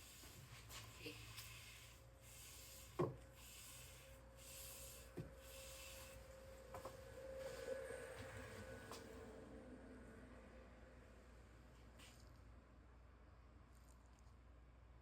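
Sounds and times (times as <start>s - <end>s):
hissy rubbing strokes on wood: 0.0s - 6.3s.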